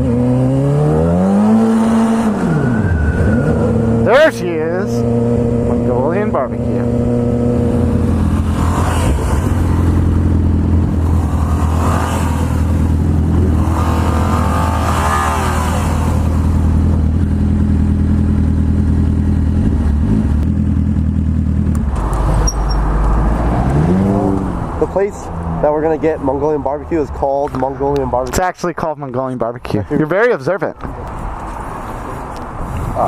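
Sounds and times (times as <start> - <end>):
motorcycle engine running: 5.0 - 22.8.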